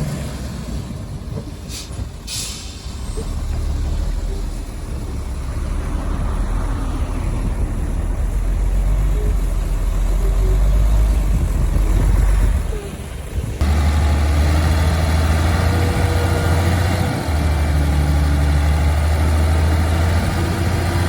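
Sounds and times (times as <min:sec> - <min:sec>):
diesel engine rumbling: 0:00.0 - 0:21.0
air release hisses: 0:01.7 - 0:03.2.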